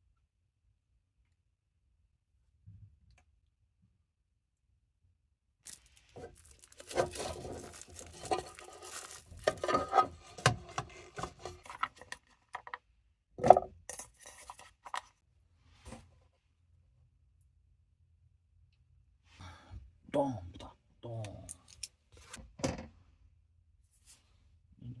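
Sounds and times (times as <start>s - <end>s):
cooking gear clattering: 5.7s - 12.8s
packaging rustling: 5.7s - 12.8s.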